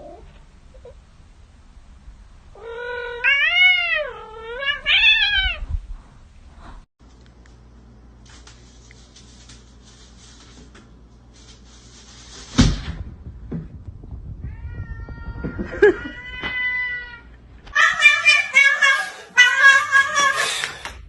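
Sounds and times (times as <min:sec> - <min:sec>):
cat meowing: 0:02.6 - 0:05.7, 0:14.4 - 0:20.4.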